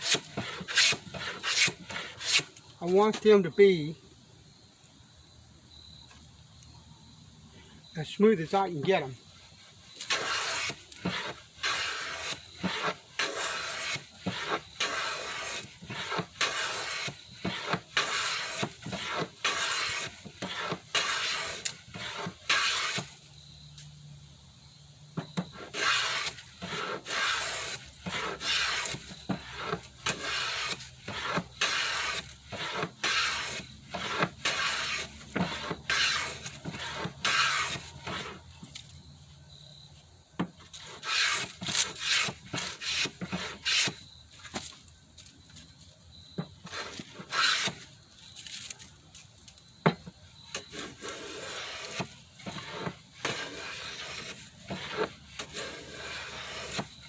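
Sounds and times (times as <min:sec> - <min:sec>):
hand plane strokes on wood: 0:00.0 - 0:03.3, 0:09.6 - 0:23.3, 0:25.2 - 0:38.8, 0:40.7 - 0:44.6, 0:46.6 - 0:47.8, 0:50.5 - 0:57.0.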